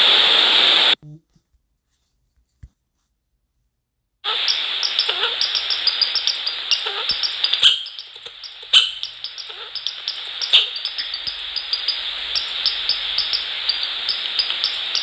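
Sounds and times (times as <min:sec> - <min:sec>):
steady hiss: 0:00.0 - 0:01.0, 0:04.2 - 0:15.0
birds pecking at feeder: 0:04.5 - 0:15.0.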